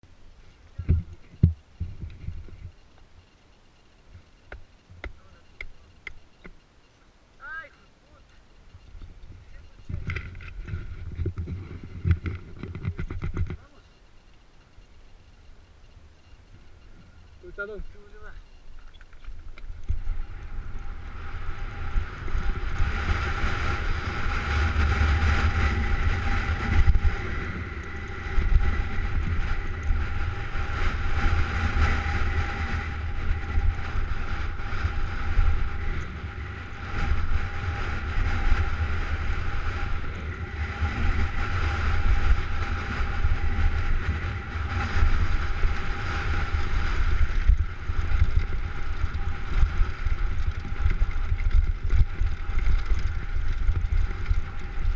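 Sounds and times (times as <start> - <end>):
wind rumbling on microphone: 0.0 - 6.6, 7.3 - 54.9
steady whine: 0.0 - 54.9
bike knocks and rattles: 10.0 - 13.7.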